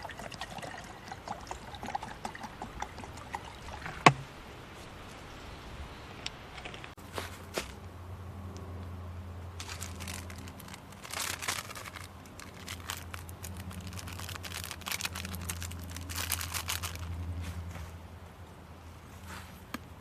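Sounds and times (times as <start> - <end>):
crinkling and rustling: 9.6 - 18.0.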